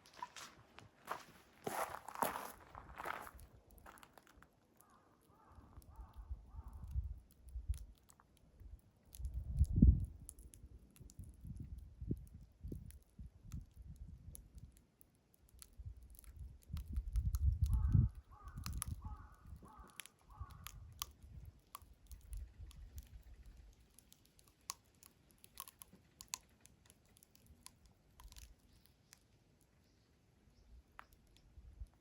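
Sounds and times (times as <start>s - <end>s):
wood fire crackling: 3.0s - 29.8s
crow cawing: 4.8s - 6.7s, 17.8s - 20.8s.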